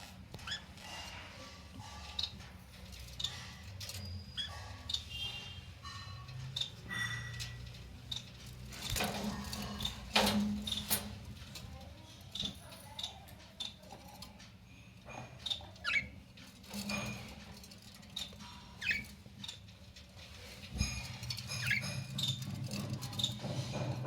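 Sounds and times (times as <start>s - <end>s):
budgerigars chirping: 18.6s - 19.1s.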